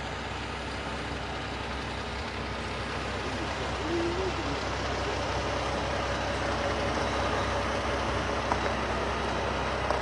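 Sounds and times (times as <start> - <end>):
heavy vehicle engines idling: 0.0 - 10.0.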